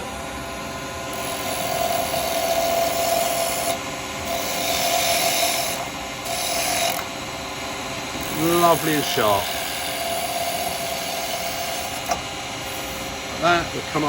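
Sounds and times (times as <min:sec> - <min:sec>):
lathe cutter cutting wood: 0:01.0 - 0:14.0.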